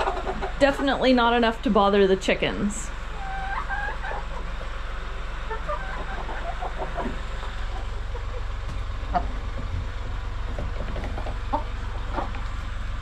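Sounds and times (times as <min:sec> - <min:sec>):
chickens clucking: 0:00.0 - 0:13.0
steady low rumble: 0:06.2 - 0:13.0.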